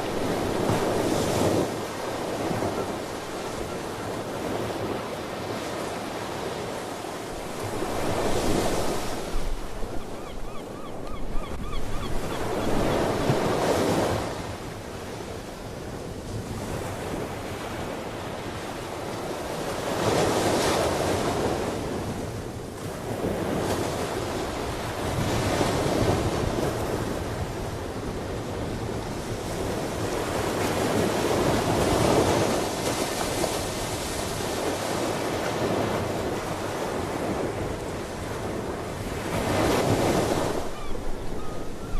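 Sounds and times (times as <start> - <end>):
ocean waves washing in: 0.0 - 10.0.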